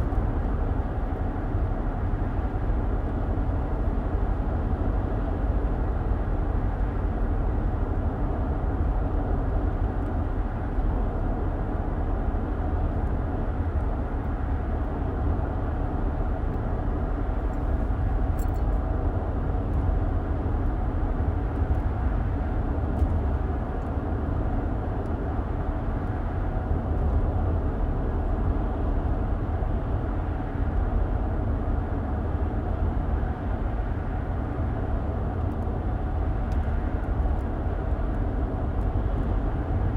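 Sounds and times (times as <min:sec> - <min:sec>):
car road rumble from inside: 0:00.0 - 0:06.2, 0:16.1 - 0:39.9.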